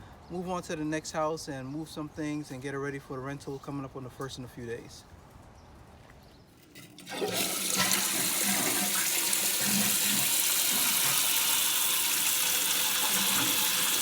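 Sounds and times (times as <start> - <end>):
water rushing in a toilet: 6.7 - 14.0.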